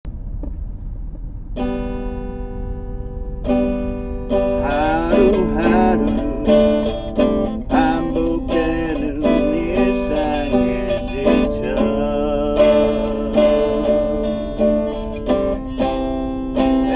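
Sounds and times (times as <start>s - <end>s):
acoustic guitar strumming: 1.5s - 16.9s
wavering melody line: 3.4s - 16.9s.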